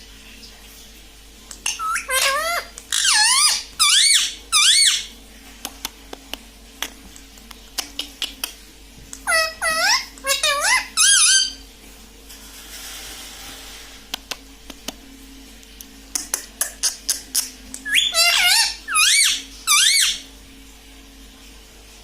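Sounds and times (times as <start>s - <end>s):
parrot squeaky calls: 1.6s - 5.1s, 9.2s - 11.6s, 16.6s - 20.2s.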